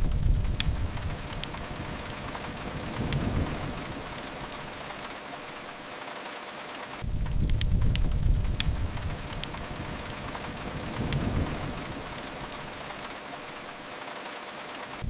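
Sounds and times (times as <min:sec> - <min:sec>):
deep rumble: 0:00.0 - 0:05.0, 0:07.0 - 0:13.1
fireplace crackles: 0:00.0 - 0:15.0
rain hiss: 0:00.0 - 0:15.0.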